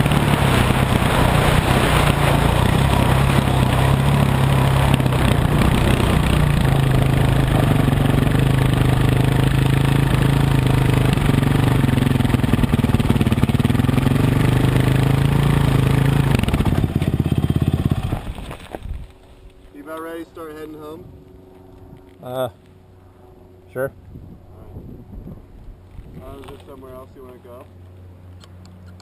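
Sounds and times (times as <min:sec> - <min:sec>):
dirt bike engine running: 0:00.0 - 0:19.6.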